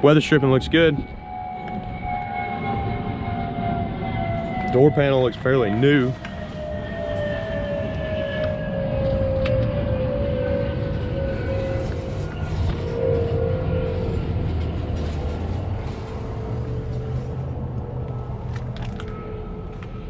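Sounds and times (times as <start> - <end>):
thin whine falling in pitch: 0.0 - 15.4
engine idling low rumble: 0.0 - 20.0.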